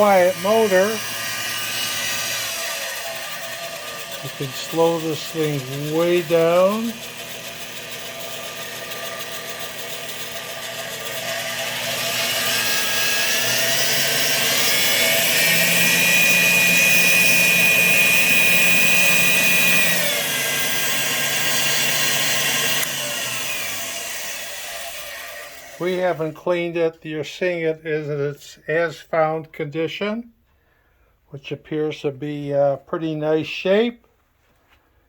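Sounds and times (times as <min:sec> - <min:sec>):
drill press motor whine: 0:00.0 - 0:26.2.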